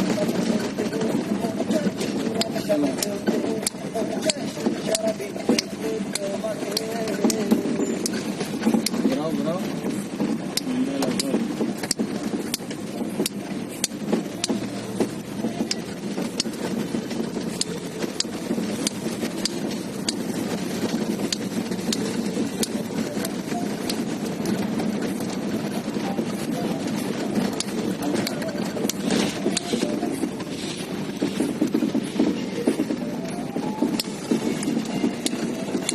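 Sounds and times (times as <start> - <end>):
car engine and road noise: 0.0 - 35.9
sharp clicks and rattles: 0.0 - 35.9.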